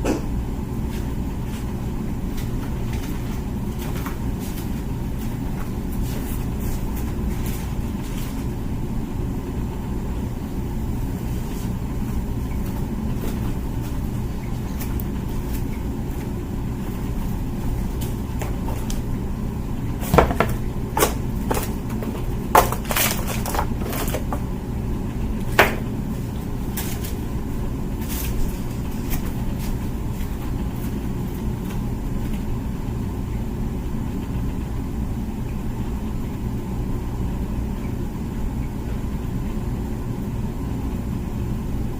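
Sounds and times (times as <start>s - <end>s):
dishwasher humming: 0.0s - 41.9s.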